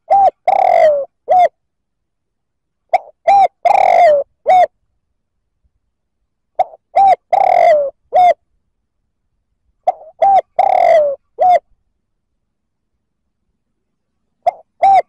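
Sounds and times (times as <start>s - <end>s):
dove cooing: 0.0s - 1.6s, 2.9s - 4.8s, 6.6s - 8.4s, 9.8s - 11.7s, 14.4s - 15.0s.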